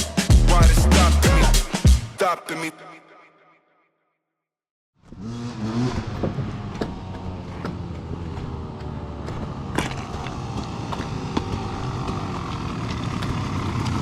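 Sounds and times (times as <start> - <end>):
dirt bike engine running: 5.0 - 14.0.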